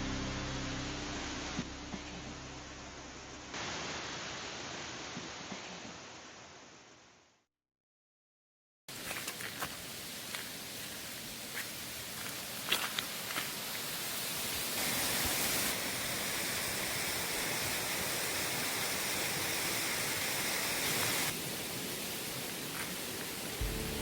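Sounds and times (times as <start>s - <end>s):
heavy rain: 3.5s - 6.5s, 9.7s - 24.0s
rushing stream: 8.9s - 24.0s.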